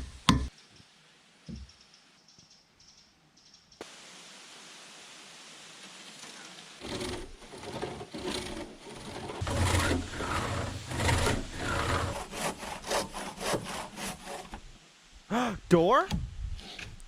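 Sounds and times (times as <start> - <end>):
saw cutting log: 6.8 - 14.7.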